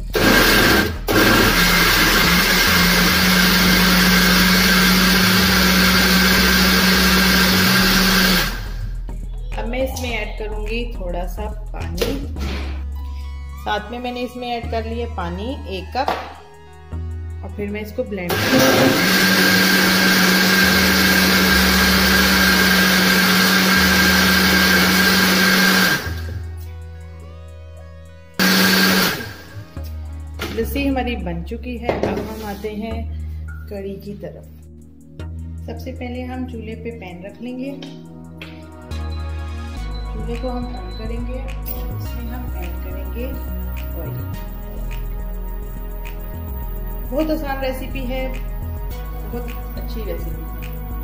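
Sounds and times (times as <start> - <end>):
blender motor running: 0.0 - 8.9, 18.3 - 26.4, 28.4 - 29.6.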